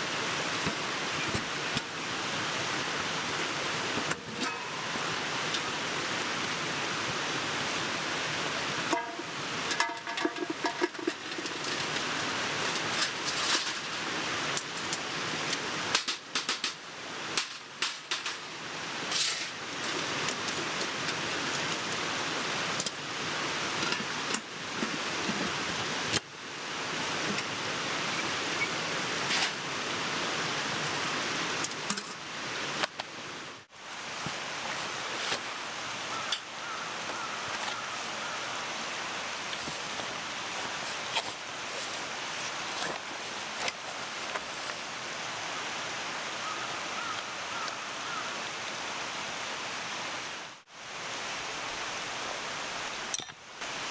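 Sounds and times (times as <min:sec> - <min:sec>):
stream rushing: 0:00.0 - 0:53.9
camping gear clicks and rustles: 0:08.8 - 0:18.5, 0:19.1 - 0:26.3, 0:33.7 - 0:45.2.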